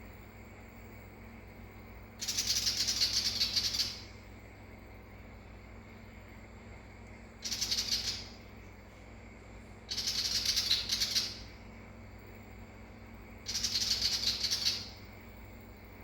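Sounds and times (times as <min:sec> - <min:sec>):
bird scolding chatter: 0:02.2 - 0:04.1, 0:07.4 - 0:08.5, 0:09.9 - 0:11.5, 0:13.5 - 0:15.0.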